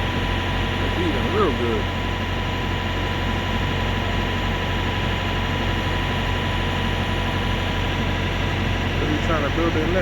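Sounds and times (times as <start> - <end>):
truck engines idling: 0.0 - 2.0.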